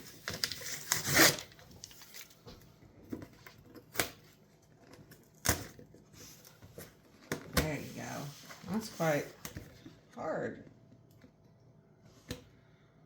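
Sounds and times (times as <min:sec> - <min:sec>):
packaging tearing: 0:00.0 - 0:02.4.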